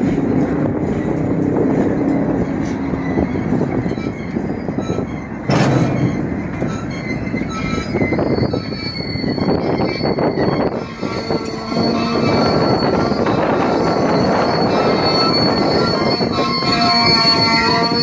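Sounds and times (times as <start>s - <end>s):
high wheel squeals: 0.0s - 18.0s
train wheels rumbling on rail: 0.0s - 18.0s
loud bang: 5.5s - 6.4s.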